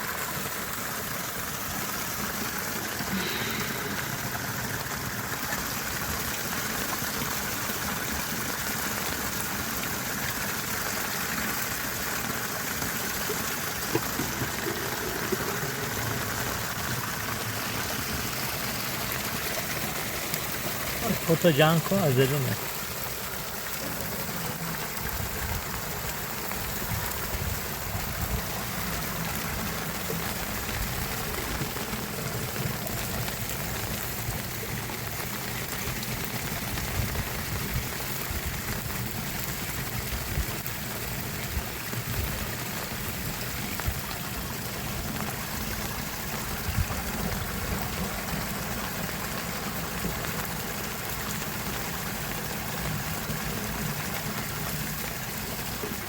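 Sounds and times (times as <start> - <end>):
river rushing: 11.4 - 26.7.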